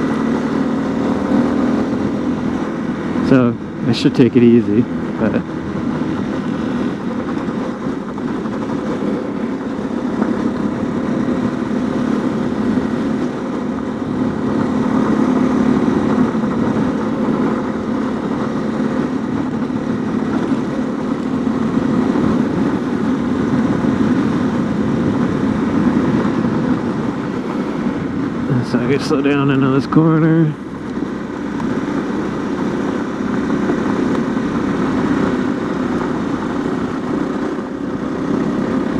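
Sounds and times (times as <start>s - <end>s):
motorcycle engine running: 0.0s - 38.9s
wind rushing: 21.4s - 29.7s.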